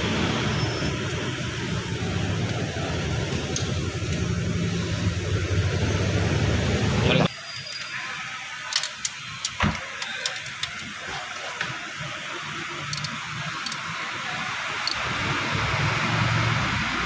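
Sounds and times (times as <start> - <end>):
car engine switching off: 0.0 - 7.2
car engine starting: 0.0 - 7.3, 14.8 - 17.0.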